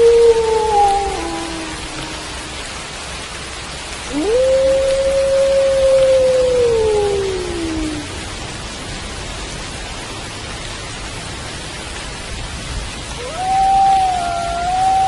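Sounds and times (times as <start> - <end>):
wolf howling: 0.0 - 2.8, 4.1 - 8.2, 13.2 - 15.0
steady rain: 0.0 - 15.0.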